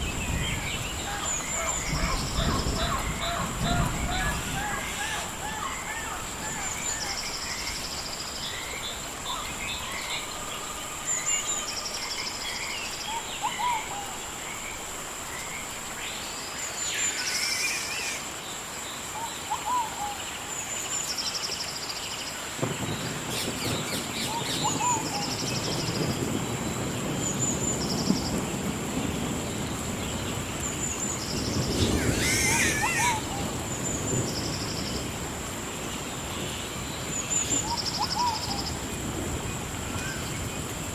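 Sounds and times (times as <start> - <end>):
birds chirping and trilling: 0.0 - 14.0, 30.3 - 35.0.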